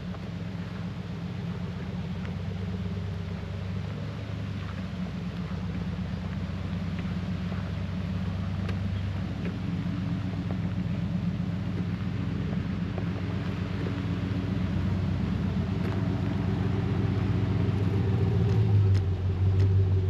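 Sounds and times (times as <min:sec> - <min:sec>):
truck engine and road drone: 0:00.0 - 0:20.0.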